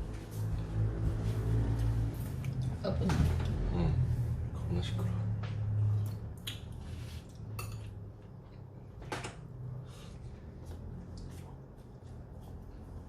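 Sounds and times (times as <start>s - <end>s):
cutlery clinking against dishes: 7.5s - 8.0s.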